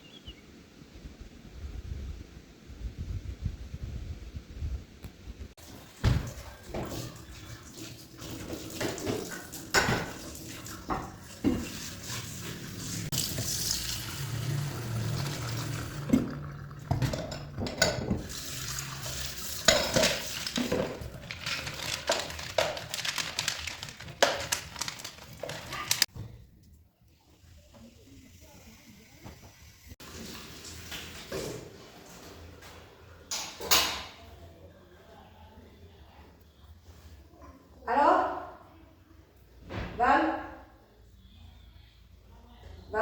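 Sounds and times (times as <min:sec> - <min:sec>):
water running: 0:05.6 - 0:26.1, 0:27.1 - 0:31.8
dishes and utensils clattering: 0:06.0 - 0:13.7, 0:14.6 - 0:26.1.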